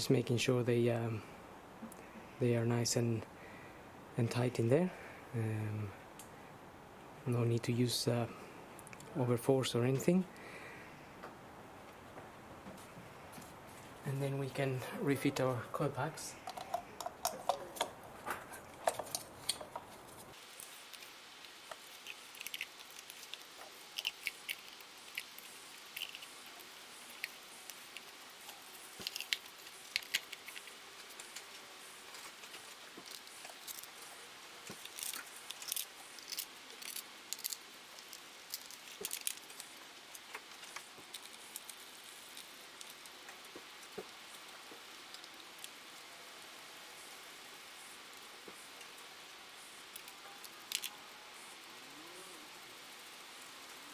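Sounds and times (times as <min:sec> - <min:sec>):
small parts clicking and rattling: 0:16.4 - 0:46.0, 0:48.0 - 0:53.9.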